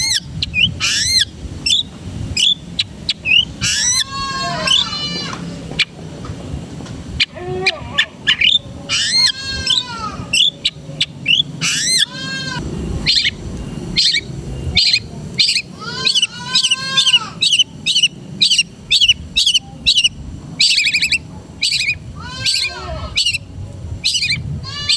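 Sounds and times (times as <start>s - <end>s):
shrike singing: 0.0s - 6.0s, 7.2s - 24.9s
sharp high bird chips: 14.0s - 23.4s.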